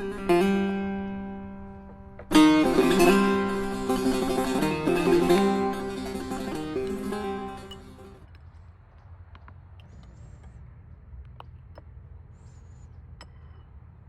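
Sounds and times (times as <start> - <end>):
plucked string instrument: 0.0 - 8.3.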